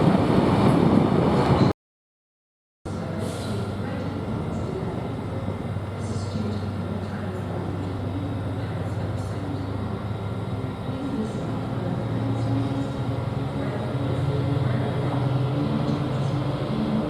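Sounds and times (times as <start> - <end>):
diesel locomotive engine hum: 0.0 - 1.7, 2.9 - 17.0.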